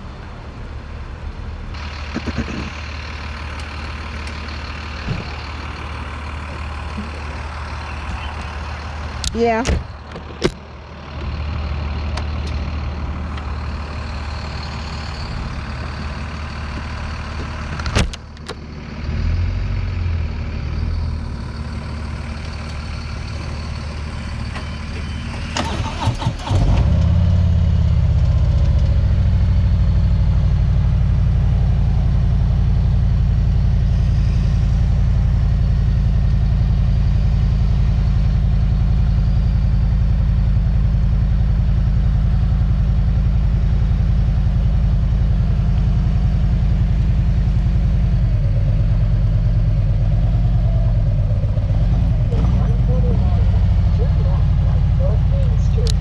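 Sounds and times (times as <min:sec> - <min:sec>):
vehicle engine idling: 0:00.0 - 0:56.0
engine starting with rev: 0:25.3 - 0:27.4.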